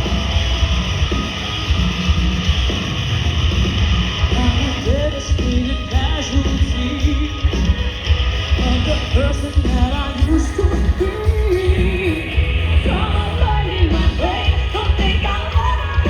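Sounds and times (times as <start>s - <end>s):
live rock band playing: 0.0s - 16.0s
person singing: 4.3s - 7.8s, 8.5s - 16.0s.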